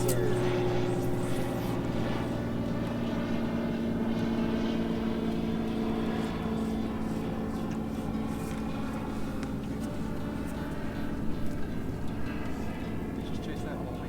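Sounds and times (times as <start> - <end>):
small boat motor running: 0.0 - 14.0.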